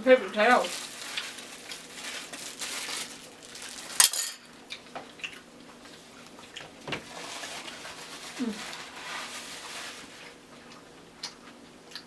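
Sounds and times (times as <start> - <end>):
cutlery and containers clinking: 4.0 - 4.5.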